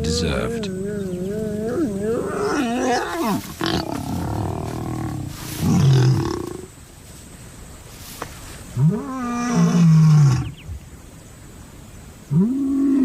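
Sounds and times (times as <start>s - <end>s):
lion low grunt: 0.0s - 6.7s
lions growling and snarling: 0.4s - 6.7s.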